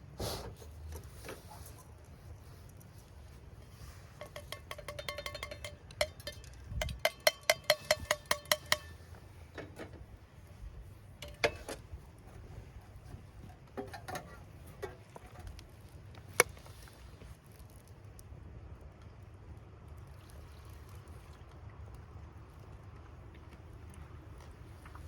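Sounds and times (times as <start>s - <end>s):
dishes clinking: 3.6s - 9.0s, 11.2s - 11.8s.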